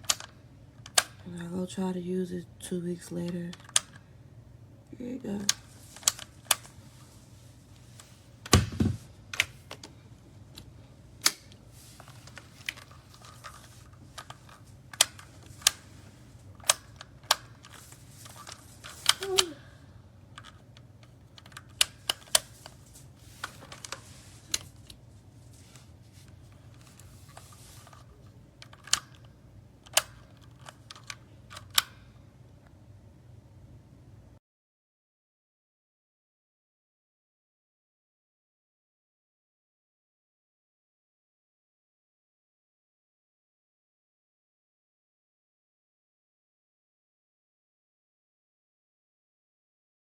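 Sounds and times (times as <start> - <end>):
faint low hum: 0.0 - 34.4
knock: 8.6 - 9.0.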